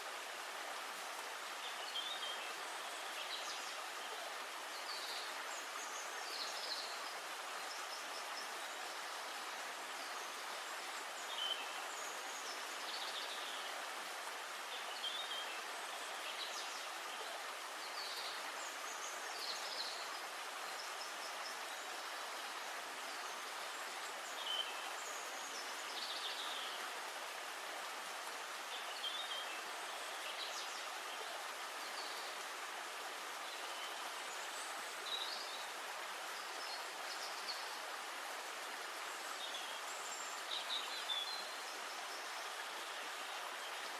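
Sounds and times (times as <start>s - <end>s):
steady forest hiss: 0.0s - 43.9s.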